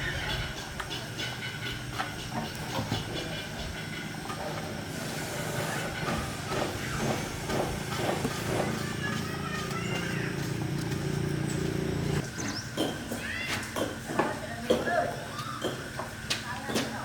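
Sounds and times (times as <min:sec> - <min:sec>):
diesel engine running: 0:02.4 - 0:12.6
hiss: 0:04.6 - 0:08.8.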